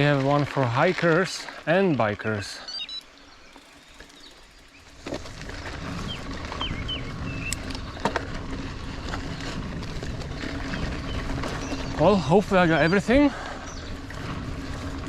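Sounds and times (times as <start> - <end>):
birds chirping: 1.0 - 15.0.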